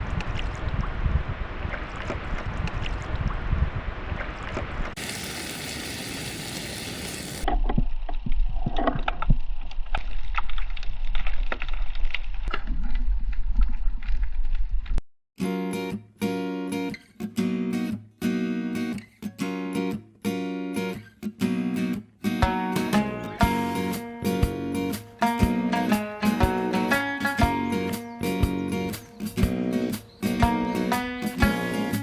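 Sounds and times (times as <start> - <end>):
wind rumble on microphone: 0.0 - 5.0
wind and waves: 0.0 - 7.4
water splashes and knocks: 1.6 - 5.0
loud hiss: 5.0 - 7.5.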